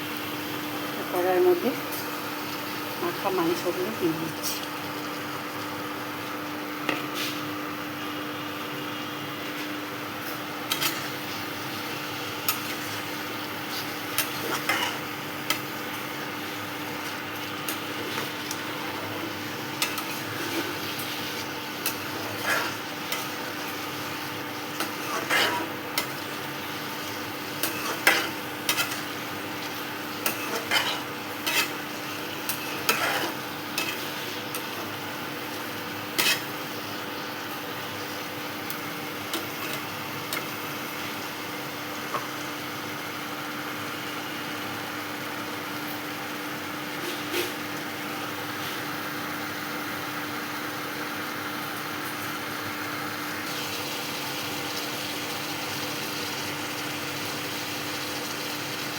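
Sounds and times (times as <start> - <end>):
chicken sizzling in hot oil: 0.0 - 58.9
spatula scraping and knocking pan: 24.8 - 26.3, 27.6 - 31.8, 32.5 - 34.2.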